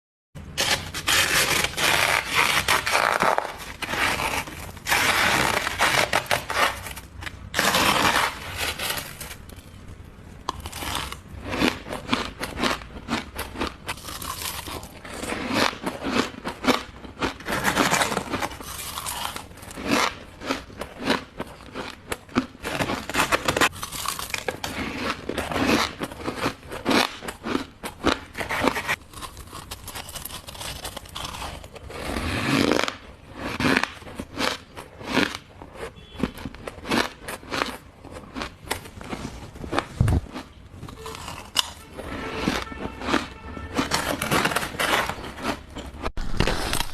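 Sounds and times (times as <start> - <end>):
teeth crunching ice: 10.4 - 46.9.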